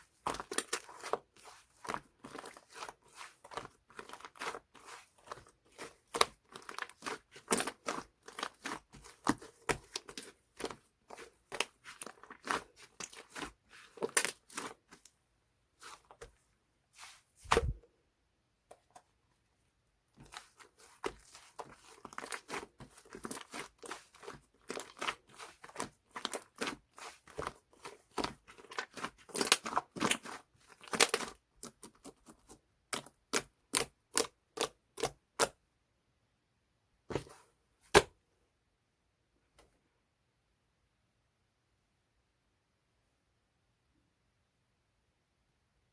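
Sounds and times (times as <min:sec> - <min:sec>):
clay slime squished by hand: 0:00.0 - 0:16.4, 0:17.0 - 0:17.8, 0:20.2 - 0:35.6.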